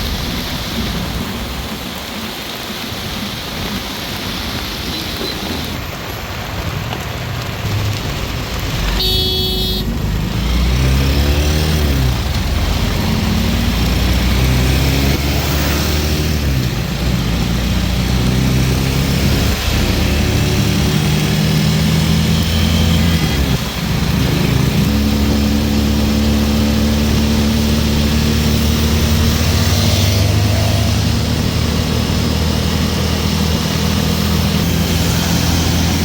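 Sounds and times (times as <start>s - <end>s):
heavy rain: 0.0s - 36.0s
vehicles driving past: 5.5s - 36.0s
car horn toot: 8.9s - 9.9s.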